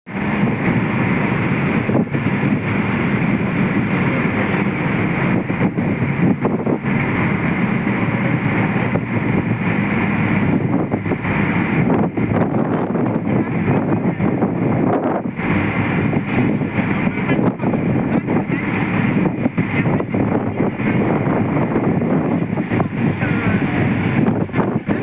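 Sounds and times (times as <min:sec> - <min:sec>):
boat motor running: 0:00.1 - 0:25.0
wind on microphone: 0:00.1 - 0:25.0.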